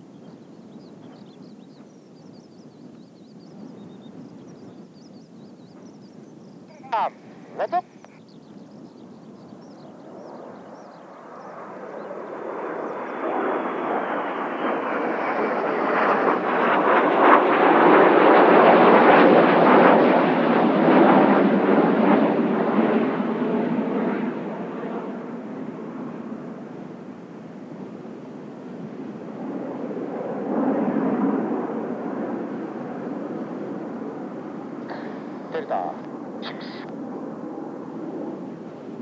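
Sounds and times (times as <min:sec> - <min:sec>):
jet aircraft flying past: 0:09.0 - 0:39.0
high jet whine: 0:34.6 - 0:37.4.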